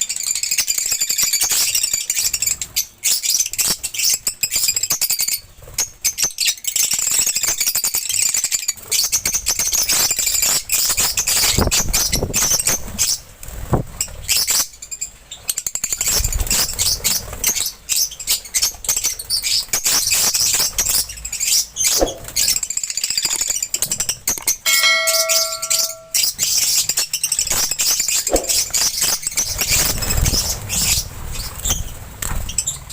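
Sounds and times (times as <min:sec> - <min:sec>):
lovebirds chirping: 0:17.9 - 0:22.6
steady ringing tone: 0:24.7 - 0:26.2.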